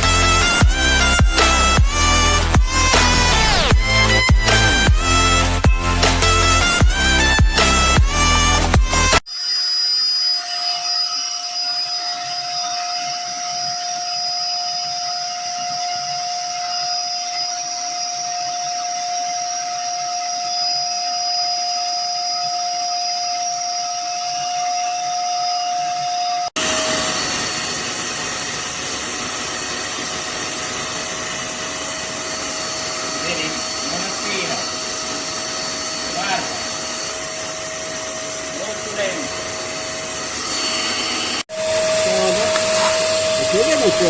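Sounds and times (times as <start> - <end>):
shop vacuum motor running: 0.0 - 44.0.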